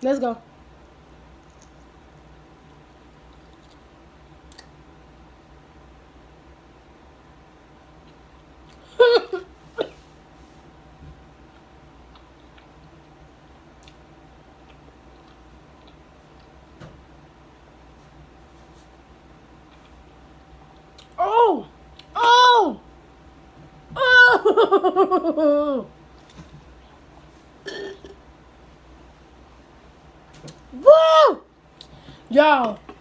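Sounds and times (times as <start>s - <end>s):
low steady hum: 0.0s - 33.0s
woman's vocal outburst of disgust: 21.2s - 22.8s, 24.0s - 24.5s, 25.4s - 25.9s, 30.8s - 31.4s, 32.3s - 32.9s.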